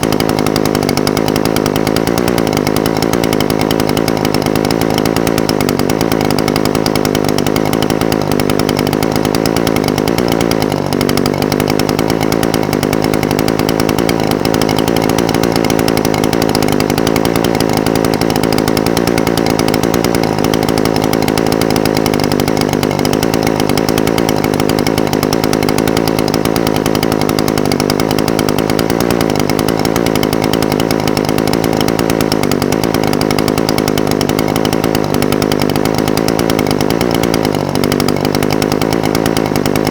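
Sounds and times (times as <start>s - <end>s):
brush cutter engine idling: 0.0s - 39.9s.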